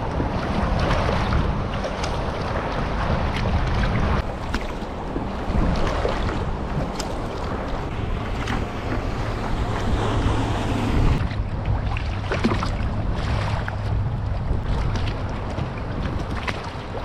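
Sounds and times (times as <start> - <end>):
low steady hum: 0.0 - 17.0
water splashing: 0.0 - 17.0
wind buffeting microphone: 0.0 - 17.0.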